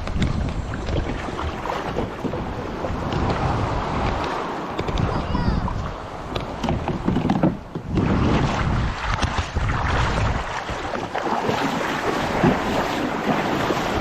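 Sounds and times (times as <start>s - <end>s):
water splashing around kayak: 0.0s - 14.0s
wind buffeting microphone: 0.0s - 14.0s.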